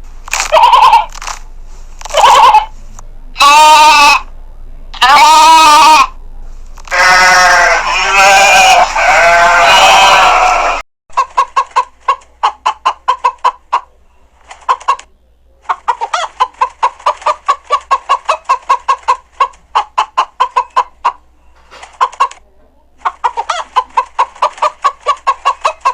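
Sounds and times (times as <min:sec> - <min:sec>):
chickens clucking: 0:00.5 - 0:01.1, 0:07.8 - 0:25.9
sheep bleat: 0:00.5 - 0:01.1, 0:03.4 - 0:04.3, 0:05.0 - 0:06.2, 0:06.9 - 0:10.8.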